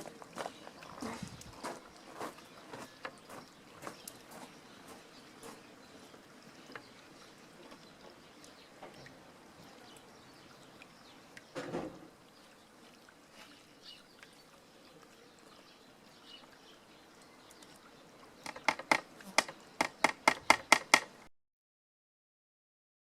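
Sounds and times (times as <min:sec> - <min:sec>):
hammer tapping nail into wood: 0:18.5 - 0:21.1.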